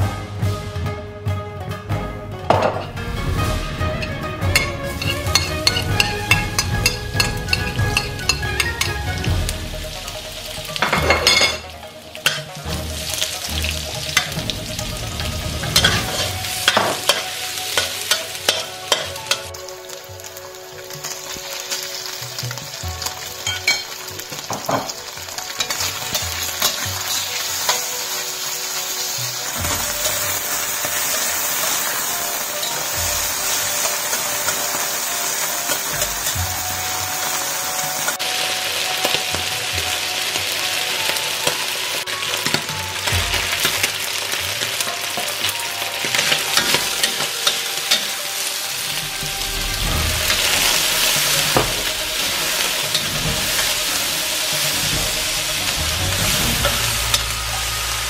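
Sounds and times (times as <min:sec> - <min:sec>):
meat sizzling in a wok: 0:03.0 - 0:58.0
spatula scraping a wok: 0:03.4 - 0:09.0, 0:12.3 - 0:19.6, 0:23.0 - 0:39.2, 0:46.1 - 0:58.0.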